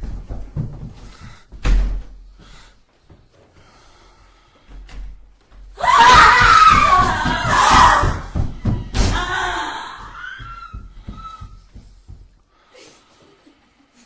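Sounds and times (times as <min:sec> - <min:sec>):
faint knocks and bumps: 0:00.0 - 0:02.4, 0:06.4 - 0:12.5.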